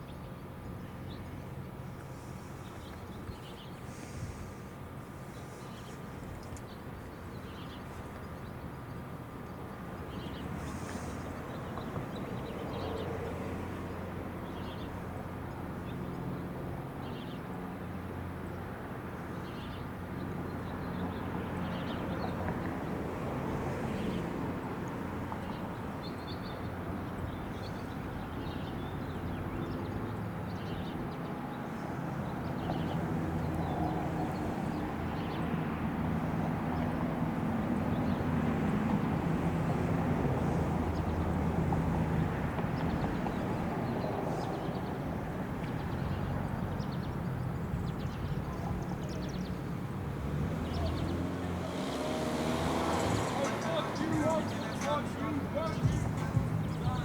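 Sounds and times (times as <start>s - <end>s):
vehicle engine drone: 32.2s - 57.0s.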